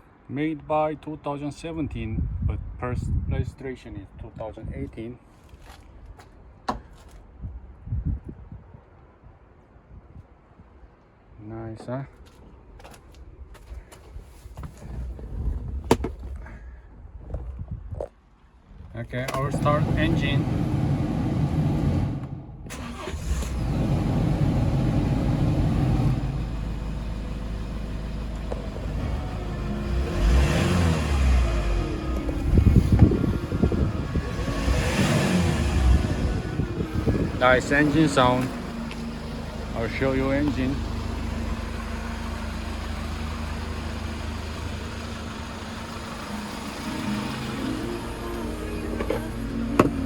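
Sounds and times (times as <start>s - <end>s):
diesel engine starting and idling: 19.1s - 50.0s.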